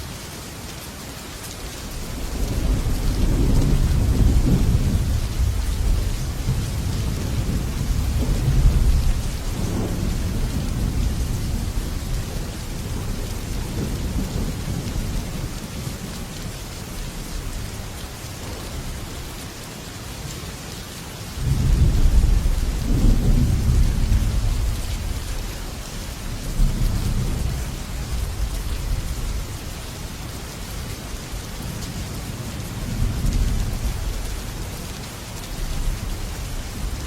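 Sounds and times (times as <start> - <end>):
rain on a metal roof: 0.0 - 37.0
thunder rumbling: 2.1 - 16.1, 21.4 - 30.3.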